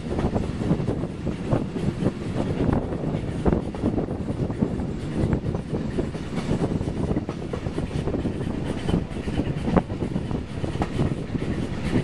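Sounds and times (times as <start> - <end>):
train carriages rumbling: 0.0 - 12.0
wheels and couplings knocking: 0.2 - 12.0.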